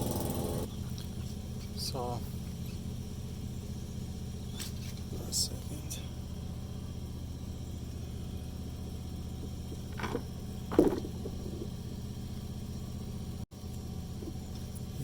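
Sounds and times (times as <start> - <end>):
low mechanical hum: 0.0 - 15.0
short knocks: 9.4 - 11.8.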